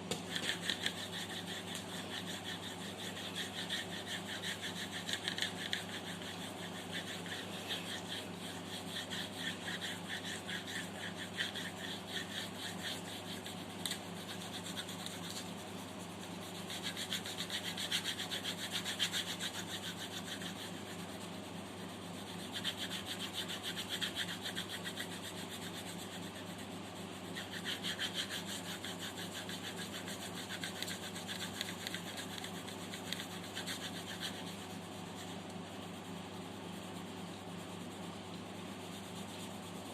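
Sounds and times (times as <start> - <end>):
pencil scratching on paper: 0.0 - 39.9
steady low hum: 0.0 - 39.9.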